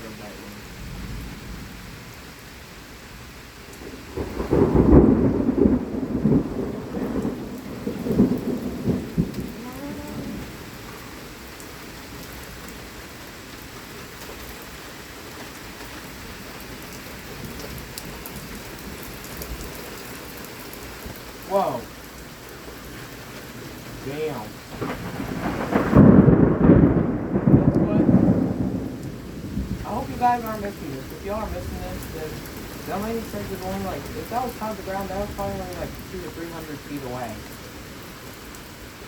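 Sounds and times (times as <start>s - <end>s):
heavy rain: 0.0s - 39.0s
thunder clap and rumble: 0.5s - 2.4s, 3.2s - 11.0s, 23.2s - 38.4s.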